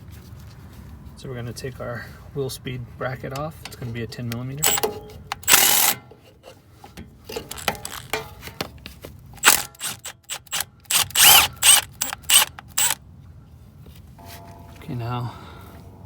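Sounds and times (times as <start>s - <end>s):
ratchet wrench clicking: 4.3s - 6.0s, 7.4s - 8.1s, 9.4s - 13.0s.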